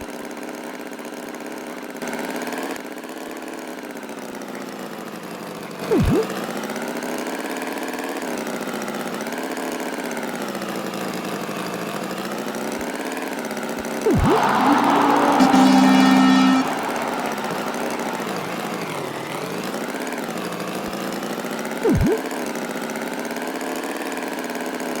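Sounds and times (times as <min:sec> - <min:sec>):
swooping sound effect: 0:05.9 - 0:06.3, 0:14.1 - 0:19.5, 0:21.8 - 0:22.2
cartoon tractor engine running: 0:21.8 - 0:22.2.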